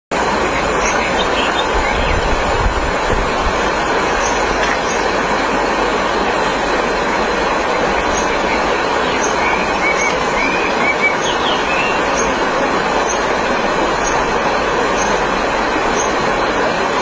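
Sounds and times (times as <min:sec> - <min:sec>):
stream rushing over rocks: 0:00.1 - 0:17.0
bird chirps: 0:08.0 - 0:12.4.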